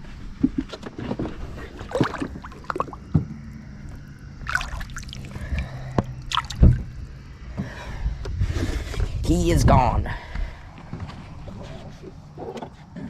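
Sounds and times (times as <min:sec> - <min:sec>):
low steady hum: 0:00.0 - 0:12.4
water splashing: 0:01.7 - 0:03.2, 0:03.9 - 0:07.0.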